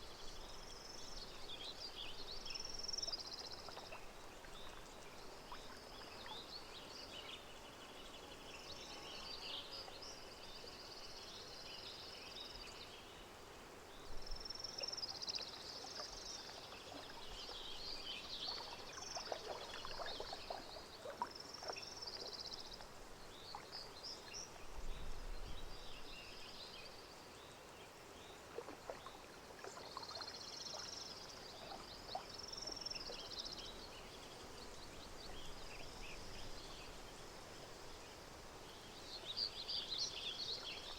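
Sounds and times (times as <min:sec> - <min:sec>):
gentle water splashing: 0:00.0 - 0:12.7, 0:13.9 - 0:40.9
songbirds singing: 0:00.0 - 0:40.9.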